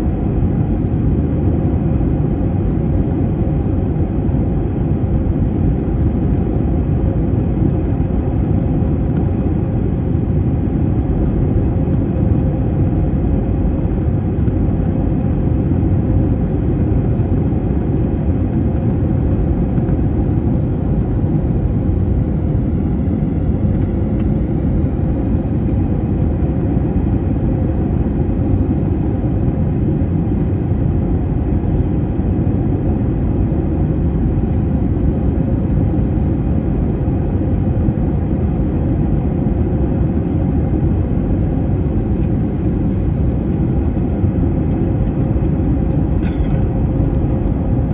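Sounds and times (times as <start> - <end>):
airliner engines rumbling in cabin: 0.0 - 47.9.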